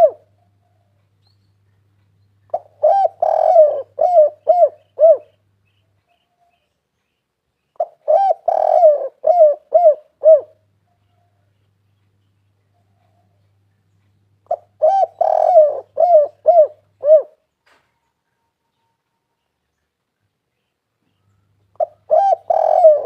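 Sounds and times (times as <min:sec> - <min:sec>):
dove cooing: 0:00.0 - 0:00.9, 0:02.5 - 0:05.4, 0:07.8 - 0:11.4, 0:14.4 - 0:17.5, 0:21.7 - 0:23.0.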